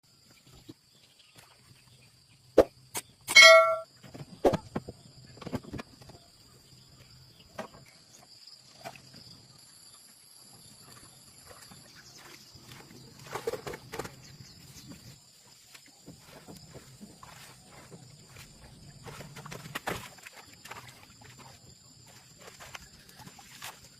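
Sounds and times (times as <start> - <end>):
ringing metal clang: 3.3 - 3.8
sharp knock: 3.3 - 3.8.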